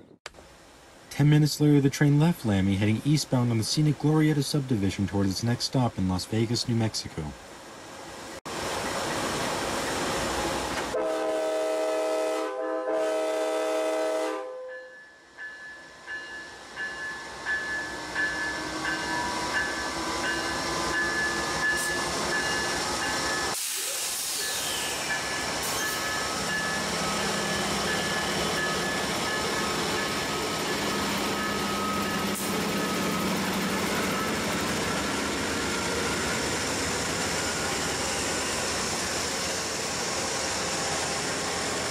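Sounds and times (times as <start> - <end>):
train air horn blasts: 10.9 - 14.7
train running rumble: 16.9 - 41.9.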